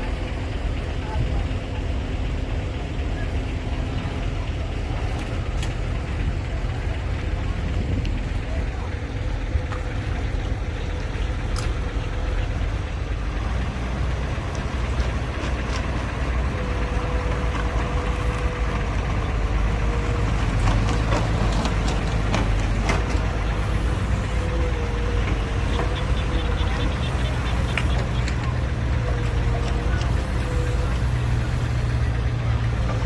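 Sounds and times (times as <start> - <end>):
heavy machine diesel engines: 0.0 - 33.0.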